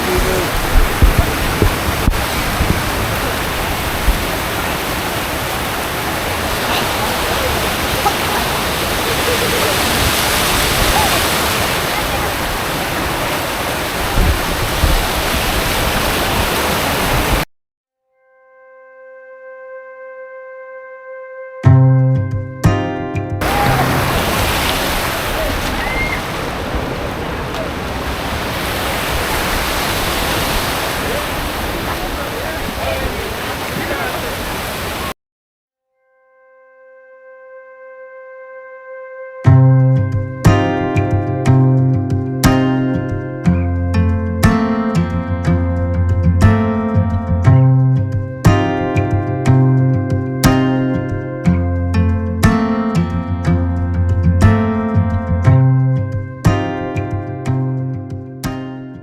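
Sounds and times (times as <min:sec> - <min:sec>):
low bumps: 0:00.0 - 0:17.4, 0:21.7 - 0:34.1, 0:39.5 - 0:58.3
waterfall rushing: 0:00.0 - 0:17.4, 0:23.4 - 0:35.2
distant shouts of people: 0:06.4 - 0:13.5, 0:23.4 - 0:28.1
water pouring over waterfall: 0:23.4 - 0:31.8.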